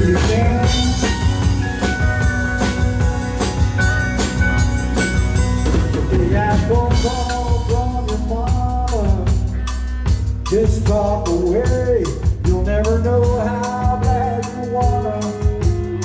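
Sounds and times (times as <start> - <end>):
person singing lead vocal: 0.0 - 1.5, 5.9 - 16.0
drum kit beat: 0.0 - 16.0
live country band playing: 0.0 - 16.0.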